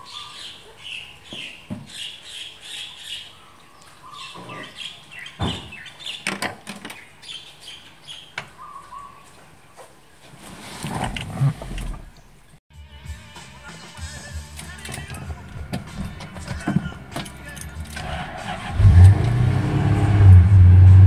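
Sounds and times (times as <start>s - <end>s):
small birds chirping: 0.0s - 10.3s.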